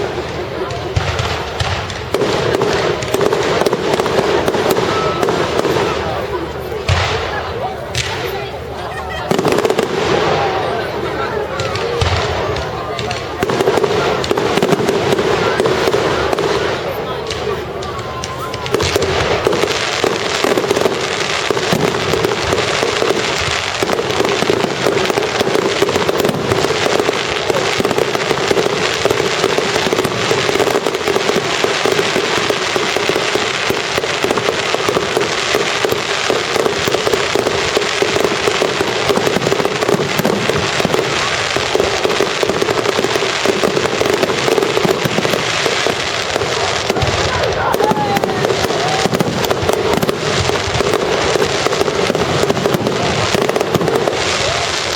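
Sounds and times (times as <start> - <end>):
fireworks crackling and banging: 0.0 - 54.9.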